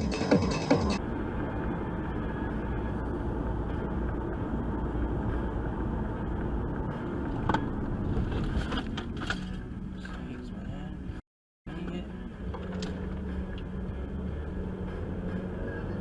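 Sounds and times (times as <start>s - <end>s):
music with a beat: 0.0s - 1.0s
car road and engine noise: 0.0s - 16.0s.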